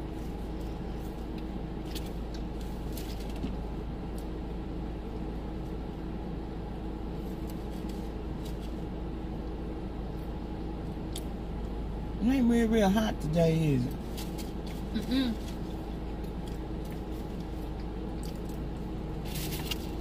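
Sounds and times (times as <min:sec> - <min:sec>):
faint constant hum: 0:00.0 - 0:20.0
person eating fries: 0:14.1 - 0:20.0.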